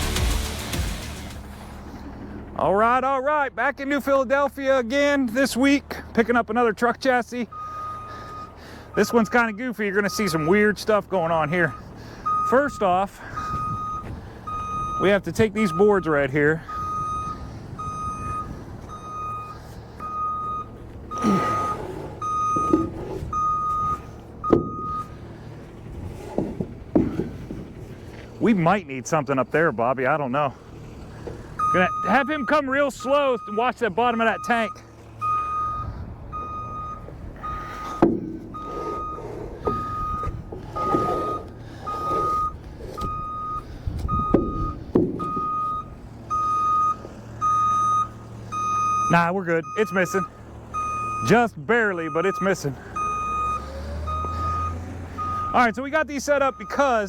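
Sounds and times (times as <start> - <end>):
low engine rumble: 0.0 - 57.0
vehicle backup alarm beeping: 6.4 - 29.7, 30.3 - 57.0
sharp knocks: 38.0 - 38.6, 44.3 - 45.5.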